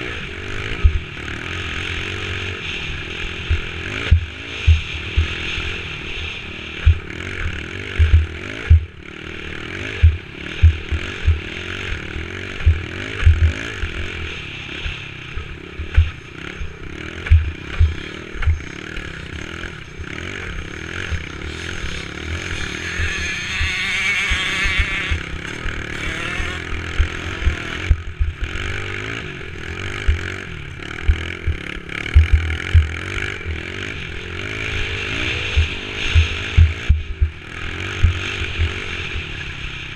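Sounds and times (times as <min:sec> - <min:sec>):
dirt bike engine revving: 0:00.0 - 0:39.9
short low thumps: 0:03.5 - 0:05.3, 0:06.8 - 0:07.1, 0:08.0 - 0:09.0, 0:10.0 - 0:11.4, 0:12.6 - 0:13.5, 0:32.2 - 0:32.9, 0:35.6 - 0:37.4.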